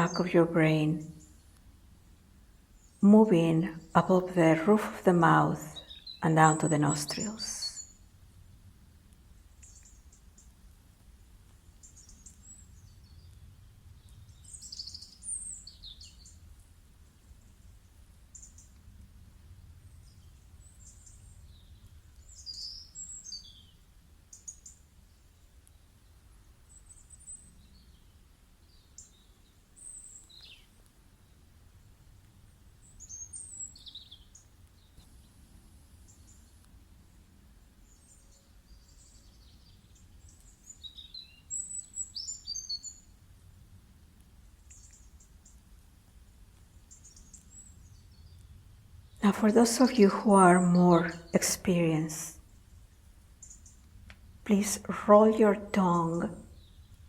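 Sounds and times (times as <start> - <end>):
birds chirping: 0.0 - 1.3, 2.9 - 7.9.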